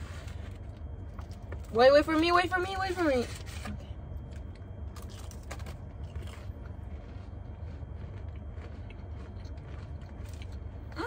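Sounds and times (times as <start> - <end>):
low car cabin hum: 0.0 - 11.0
people crunching cookies: 0.0 - 11.0.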